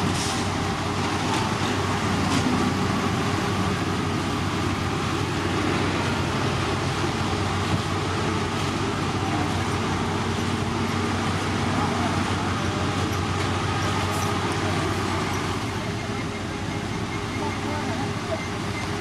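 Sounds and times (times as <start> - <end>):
broad noisy wash: 0.0 - 19.0
heavy machinery engine hum: 0.0 - 19.0.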